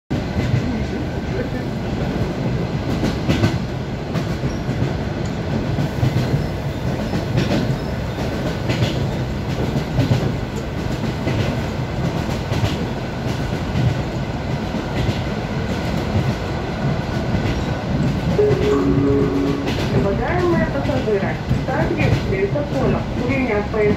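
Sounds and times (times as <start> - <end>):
train wheels clattering over rail joints: 5.8 - 16.4.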